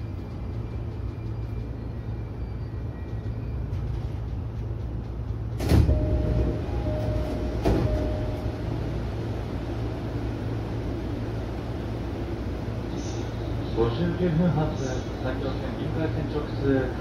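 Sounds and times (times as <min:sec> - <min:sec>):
train equipment humming: 0:00.0 - 0:17.0
steady beep: 0:05.9 - 0:08.6.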